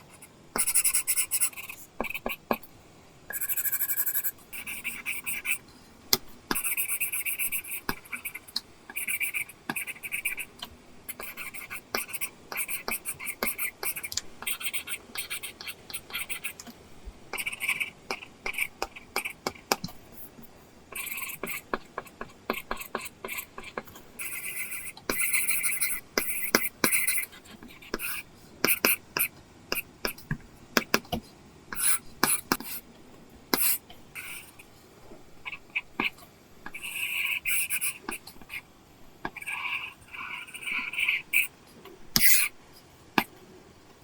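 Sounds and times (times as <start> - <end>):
stylus scratching on screen: 0.0 - 2.7, 3.3 - 5.6, 6.5 - 16.6, 17.4 - 20.4, 21.0 - 30.2, 35.4 - 38.7, 39.3 - 42.6.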